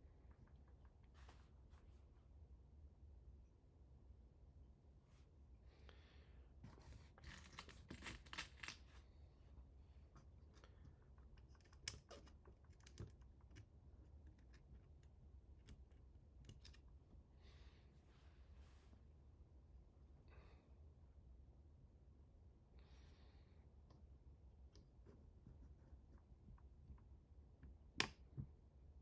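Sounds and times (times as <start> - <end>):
small parts clicking and rustling: 7.1 - 9.0, 10.2 - 16.9.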